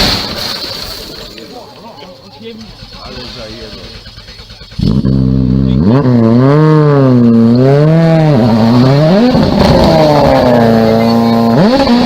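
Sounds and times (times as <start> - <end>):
rally car engine revving: 2.6 - 12.0.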